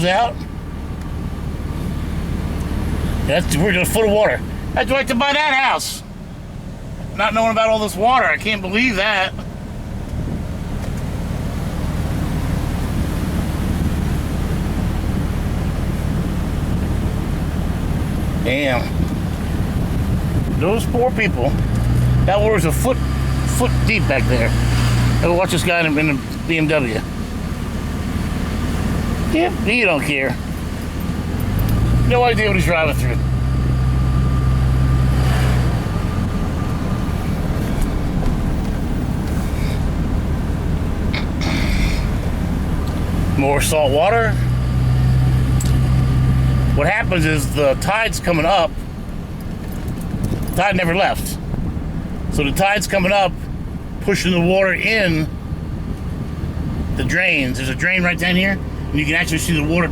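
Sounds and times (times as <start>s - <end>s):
low engine rumble: 0.0s - 59.9s
road noise: 0.0s - 59.9s
water spraying under tyres: 10.6s - 50.6s.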